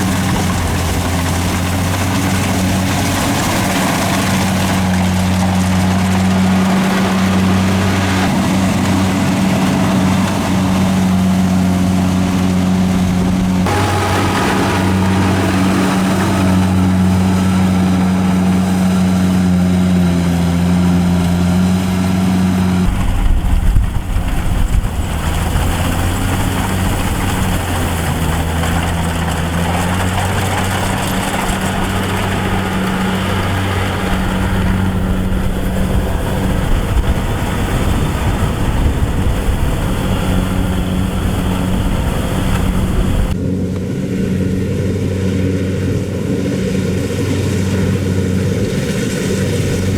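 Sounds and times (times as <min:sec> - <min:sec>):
harvesting machine engine humming: 0:00.0 - 0:49.9.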